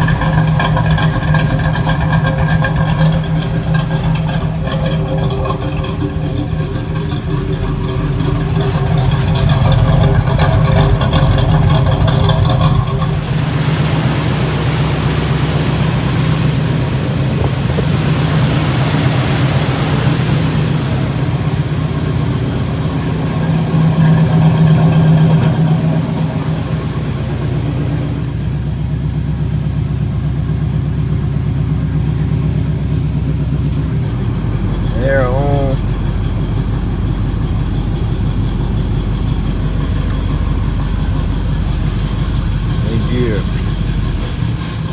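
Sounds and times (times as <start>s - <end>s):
car engine idling: 0.0s - 44.9s
hiss: 13.1s - 21.7s.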